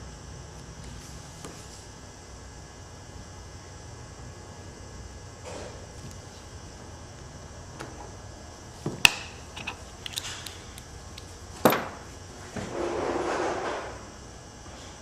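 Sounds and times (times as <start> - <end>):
scraping rustle: 12.4 - 14.0.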